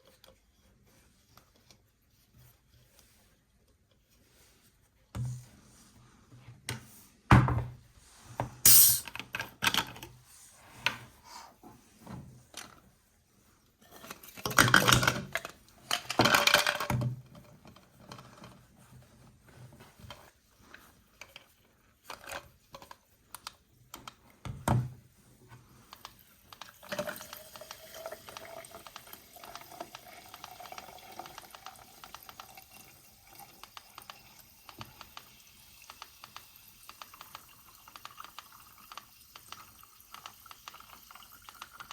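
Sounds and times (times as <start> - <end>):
plastic toys tapping and clicking: 14.4 - 17.1, 25.9 - 32.7, 33.4 - 41.9.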